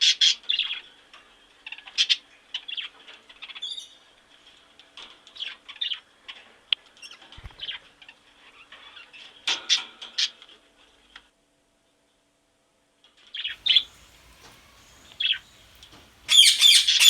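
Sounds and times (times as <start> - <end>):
birds chirping: 13.6 - 17.0.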